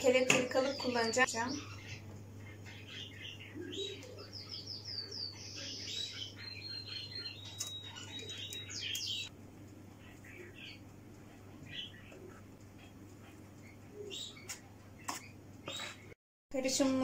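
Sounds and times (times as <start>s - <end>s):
steady low hum: 0.0s - 16.2s
small bird chirping: 0.4s - 9.3s.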